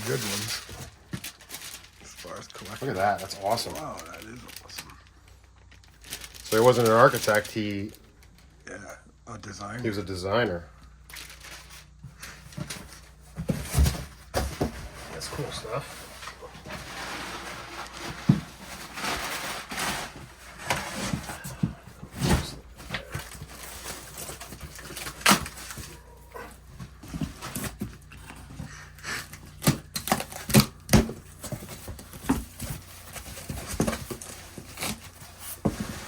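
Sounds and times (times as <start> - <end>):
rustling: 0.0 - 8.7, 10.9 - 36.0
items knocking in cardboard boxes: 12.3 - 36.0.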